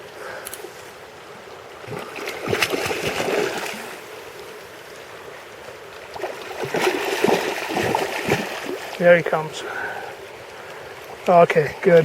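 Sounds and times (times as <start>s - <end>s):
river water running: 0.0s - 12.0s
fish thrashing and splashing: 1.8s - 4.0s, 6.2s - 9.0s.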